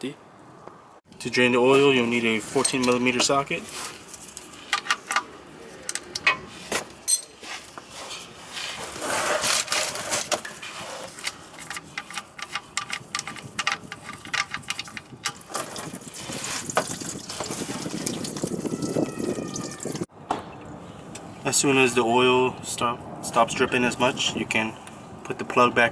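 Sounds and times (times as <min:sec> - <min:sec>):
metal clinks: 0:07.1 - 0:07.4.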